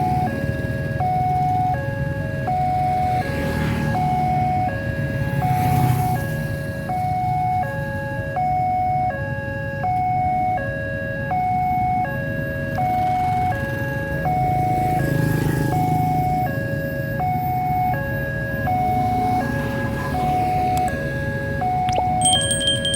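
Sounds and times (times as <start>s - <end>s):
level crossing alarm: 6.8s - 15.2s, 15.8s - 22.9s.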